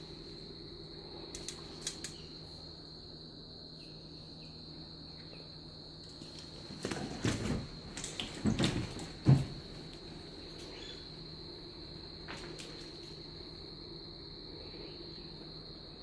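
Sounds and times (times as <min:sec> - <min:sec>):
crickets trilling: 0:00.0 - 0:16.0
rustling and knocking: 0:06.8 - 0:09.7.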